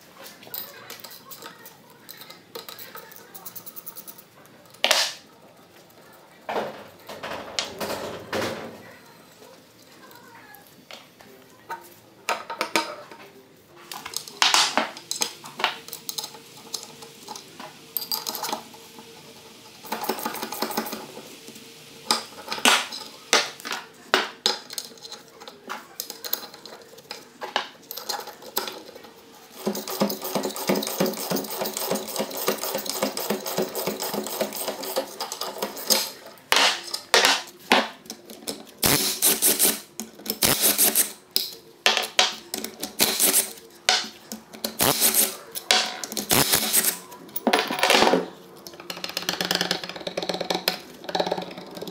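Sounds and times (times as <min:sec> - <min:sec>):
metal tools clinking: 0:15.8 - 0:18.6.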